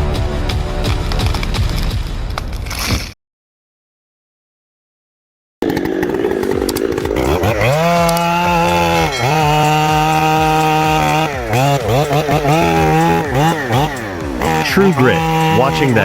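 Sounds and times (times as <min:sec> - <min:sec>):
chainsaw engine revving: 0:05.6 - 0:16.0.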